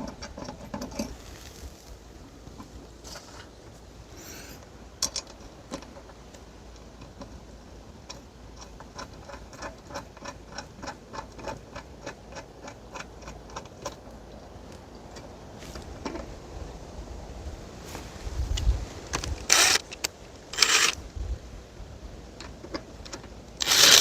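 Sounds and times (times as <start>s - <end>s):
low wind rumble: 12.6s - 24.0s.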